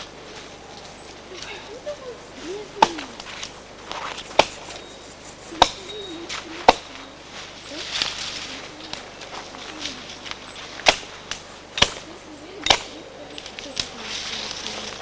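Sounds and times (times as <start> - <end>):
sharp knocking blows: 2.8 - 4.8, 5.4 - 7.1, 10.8 - 13.0.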